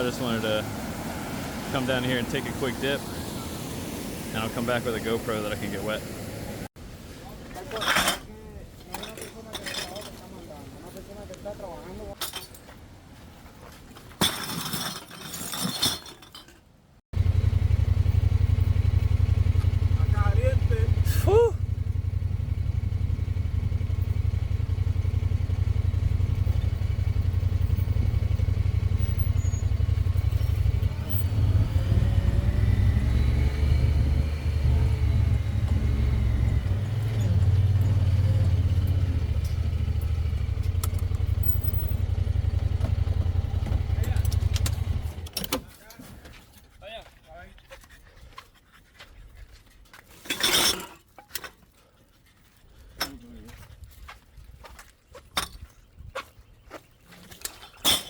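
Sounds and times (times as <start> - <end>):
vehicle engine starting: 17.2 - 45.6.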